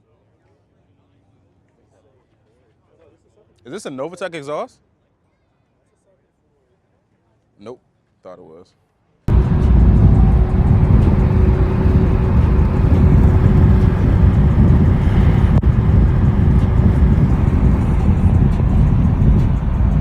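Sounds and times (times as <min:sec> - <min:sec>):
car engine rumbling: 0:09.3 - 0:20.0.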